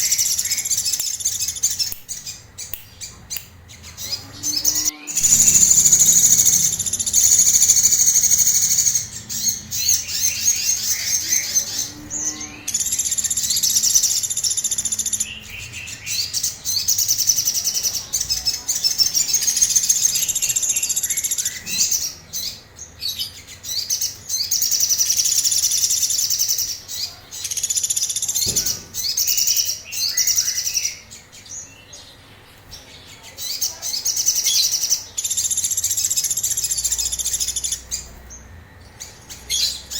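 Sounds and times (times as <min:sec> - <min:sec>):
songbird singing rapid high notes: 0:00.0 - 0:22.7.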